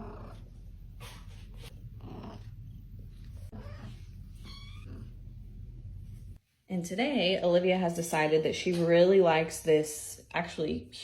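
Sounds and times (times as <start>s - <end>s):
low steady hum: 0.0s - 8.1s
cat chirping: 3.5s - 5.1s.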